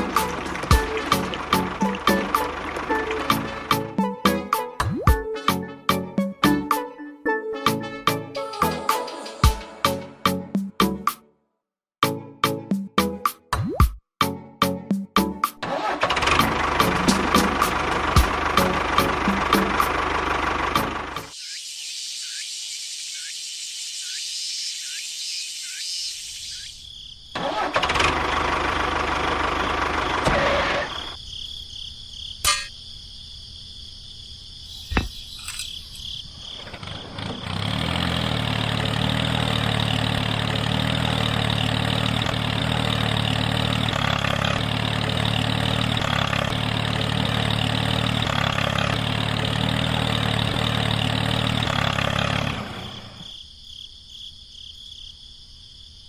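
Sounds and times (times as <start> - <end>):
engine starting and running: 0.0 - 4.7, 15.6 - 21.4, 27.3 - 31.2, 36.3 - 53.3.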